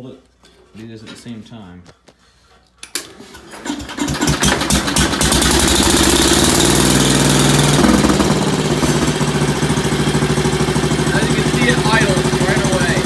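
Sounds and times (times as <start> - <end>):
tractor engine starting and running: 2.8 - 13.0.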